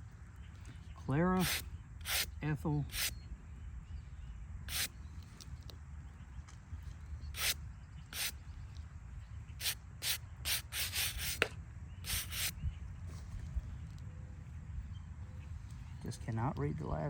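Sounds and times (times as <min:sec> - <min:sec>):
brush scrubbing stone: 0:01.4 - 0:02.2.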